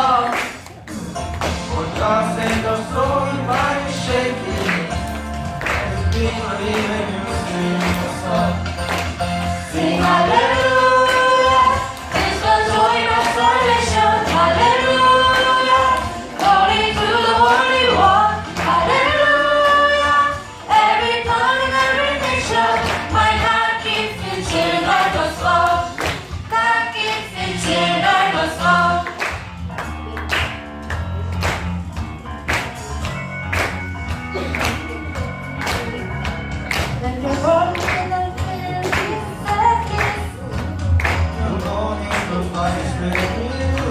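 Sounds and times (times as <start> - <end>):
group singing worship song: 0.0 - 0.6, 1.6 - 29.2, 41.2 - 43.9
band with drums and bass: 29.2 - 43.9.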